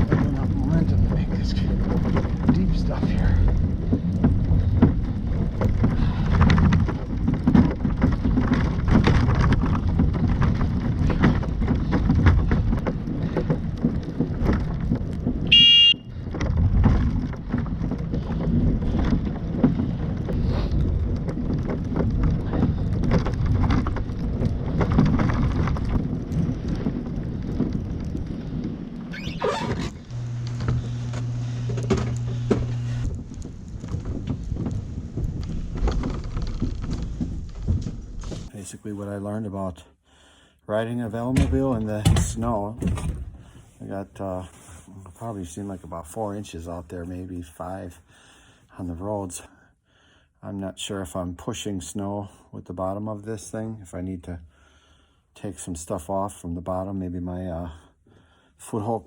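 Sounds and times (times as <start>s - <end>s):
short high beep: 15.5s - 16.1s
steady low hum: 29.6s - 36.2s.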